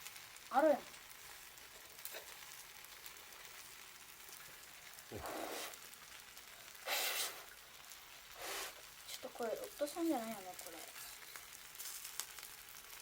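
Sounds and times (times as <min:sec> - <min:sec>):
bonfire crackling and hissing: 0:00.0 - 0:13.0
faint fire pops: 0:00.0 - 0:13.0.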